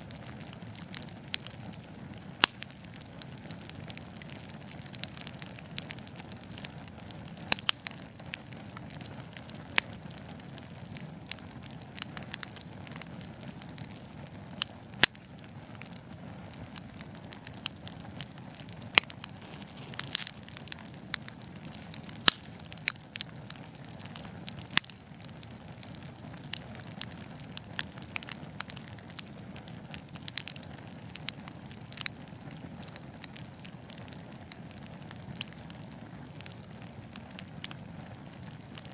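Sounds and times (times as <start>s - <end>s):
logs crackling and popping: 0.0s - 38.9s
hiss of flames: 18.9s - 22.8s.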